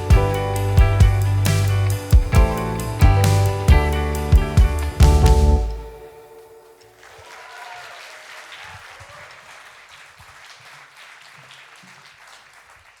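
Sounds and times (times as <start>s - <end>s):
band's last chord: 0.0s - 6.8s
audience applauding: 6.8s - 13.0s.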